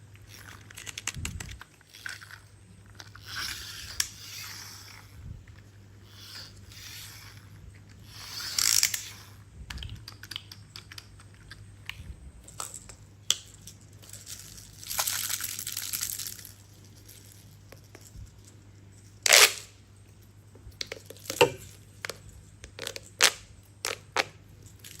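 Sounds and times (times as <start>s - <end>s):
plastic toy pieces scraping: 0.2s - 9.4s, 19.2s - 19.7s
plastic toy clicks: 0.3s - 2.4s, 8.1s - 11.1s.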